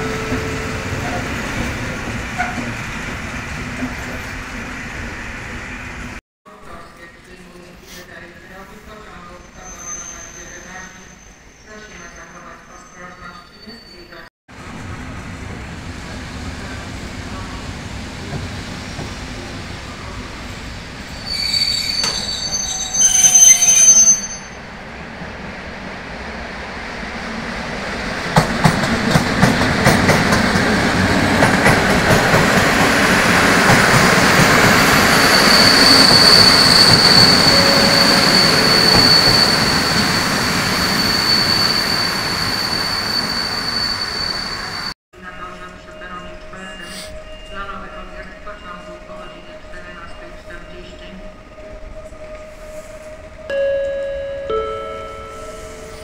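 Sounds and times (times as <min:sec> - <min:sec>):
train wheels squealing: 0:09.3 - 0:14.3, 0:21.1 - 0:24.6, 0:34.9 - 0:45.0
train running noise: 0:27.2 - 0:53.5.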